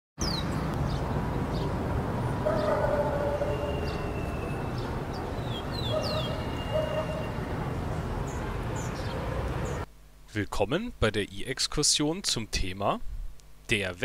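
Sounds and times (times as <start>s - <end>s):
birds calling: 0.2s - 9.9s.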